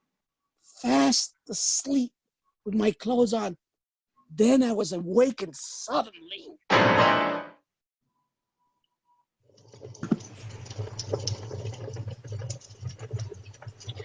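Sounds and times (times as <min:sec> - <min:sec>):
music sting chord: 0:06.7 - 0:07.5
fire crackling and snapping: 0:09.6 - 0:14.0.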